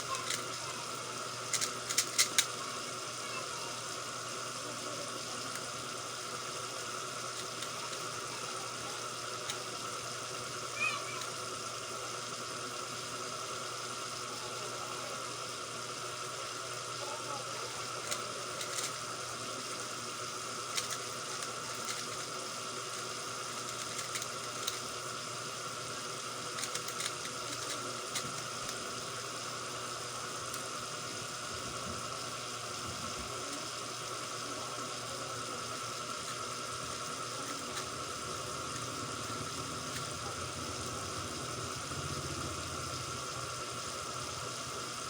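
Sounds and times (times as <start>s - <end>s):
puzzle cube clicking: 0.0s - 0.6s, 1.5s - 2.6s, 17.8s - 19.0s, 20.7s - 25.0s, 26.5s - 28.8s
background hum and hiss: 0.0s - 45.0s.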